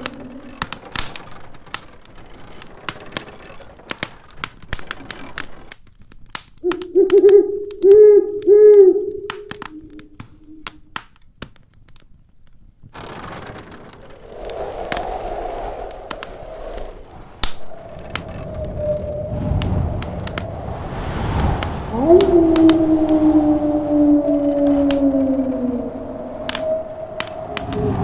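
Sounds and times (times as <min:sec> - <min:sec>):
wood fire crackling and popping: 0:00.0 - 0:28.0
low hollow hooting tone: 0:06.6 - 0:10.6, 0:15.4 - 0:20.7, 0:21.5 - 0:28.0
faint storm wind rushing: 0:13.0 - 0:28.0.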